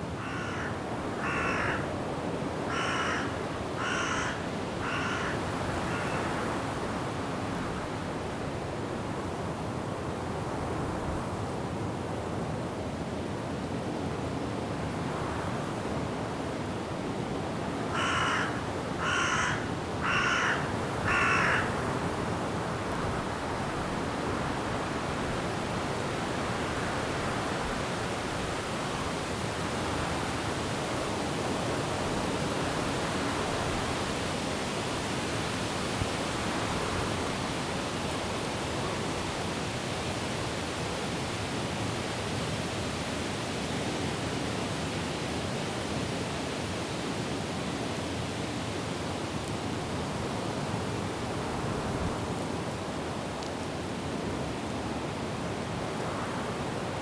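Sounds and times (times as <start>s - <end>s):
wind and rain in trees: 0.0s - 57.0s
bird calling loudly: 0.2s - 1.8s, 2.7s - 6.2s, 18.0s - 21.7s.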